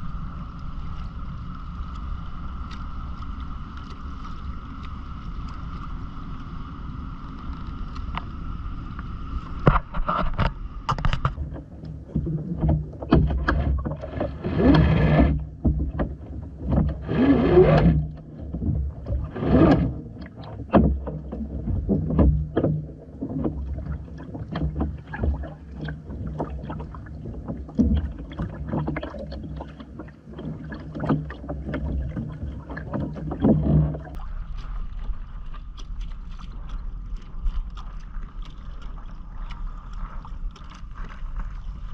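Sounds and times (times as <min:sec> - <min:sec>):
steady low hum: 0:00.0 - 0:41.9
water washing against hull: 0:00.0 - 0:41.9
knocks and clicks: 0:09.7 - 0:23.8.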